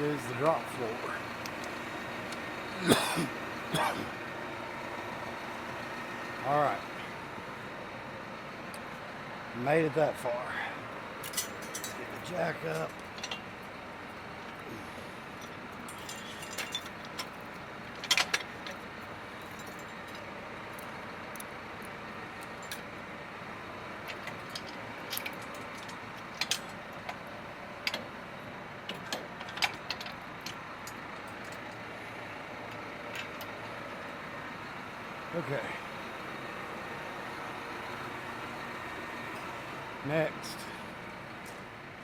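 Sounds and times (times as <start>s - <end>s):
engine hum: 0.0s - 42.0s
metal clinks and knocks: 15.4s - 18.8s.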